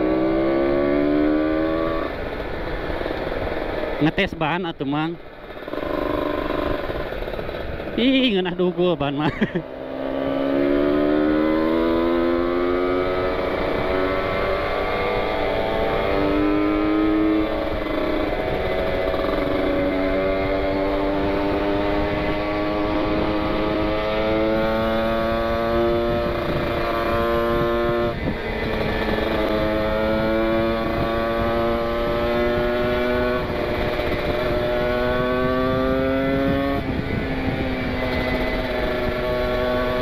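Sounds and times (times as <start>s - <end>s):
two-stroke motorcycle engine revving: 0.0s - 40.0s
wind rushing on microphone: 11.1s - 40.0s.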